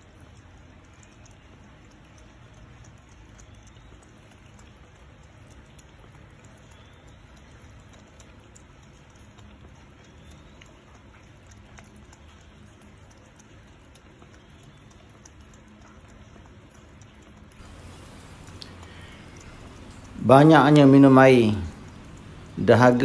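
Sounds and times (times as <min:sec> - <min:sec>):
cat lapping water: 0:00.0 - 0:23.0
small drops pattering: 0:17.0 - 0:23.0
steady rain: 0:17.4 - 0:23.0.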